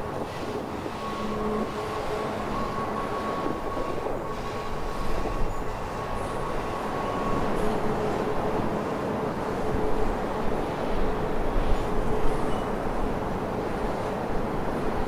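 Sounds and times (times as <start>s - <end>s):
thin steady squeal: 0.0s - 13.3s
train wheels rumbling on rail: 0.0s - 15.0s.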